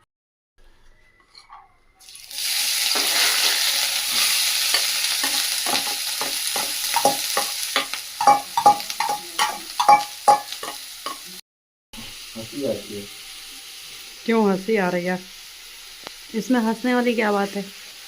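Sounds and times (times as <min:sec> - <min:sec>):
food sizzling in hot oil: 0:02.0 - 0:11.4, 0:12.0 - 0:18.0
utensil knocking against pan: 0:05.2 - 0:11.2.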